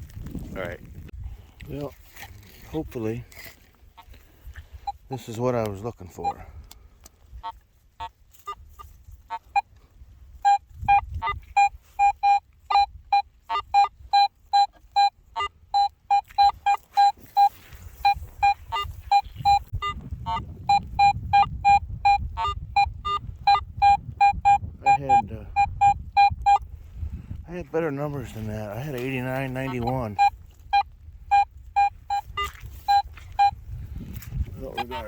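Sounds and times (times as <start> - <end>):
metal detector beeps: 4.8 - 5.3, 6.1 - 6.5, 8.0 - 26.7, 29.0 - 33.7, 34.5 - 35.0.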